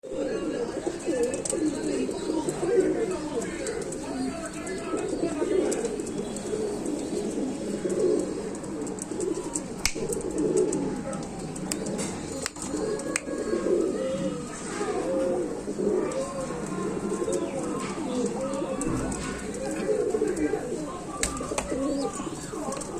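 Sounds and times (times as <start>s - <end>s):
pigeons cooing: 0.0s - 22.9s
sharp clicks: 7.8s - 13.4s.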